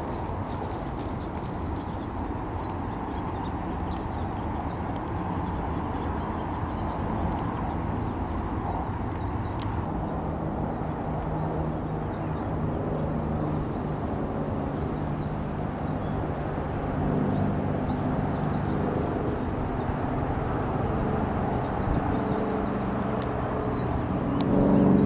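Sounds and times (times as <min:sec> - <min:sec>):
engine drone: 0:09.5 - 0:25.0.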